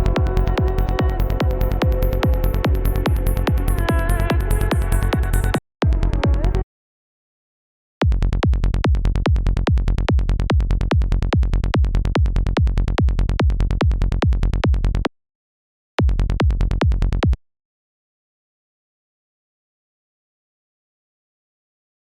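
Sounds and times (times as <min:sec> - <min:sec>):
electronic dance music: 0:00.0 - 0:05.6
electronic kick drum and synth bass: 0:00.0 - 0:06.6, 0:08.0 - 0:15.1, 0:16.0 - 0:17.4.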